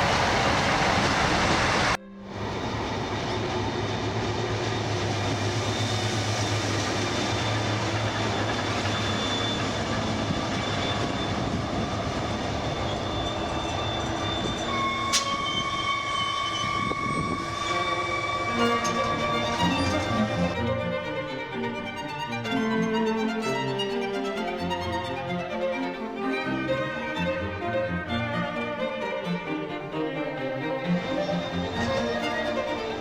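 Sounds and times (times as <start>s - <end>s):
train rumbling on rails: 0.0s - 20.9s, 30.8s - 33.0s.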